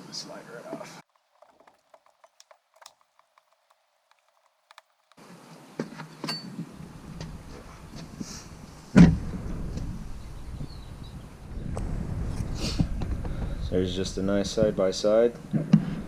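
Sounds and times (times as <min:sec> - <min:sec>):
metal clicks and knocks: 0:01.1 - 0:05.2.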